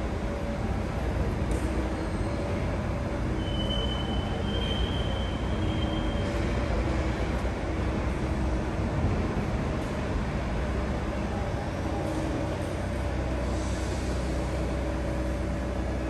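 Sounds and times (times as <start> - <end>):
metro train rumbling: 0.0 - 16.0
high squeal: 3.4 - 6.4.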